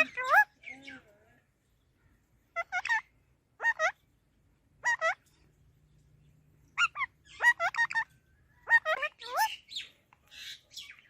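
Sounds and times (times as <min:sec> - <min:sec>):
parrot calling: 0:00.0 - 0:01.2, 0:02.5 - 0:04.1, 0:04.8 - 0:05.3, 0:06.8 - 0:11.0.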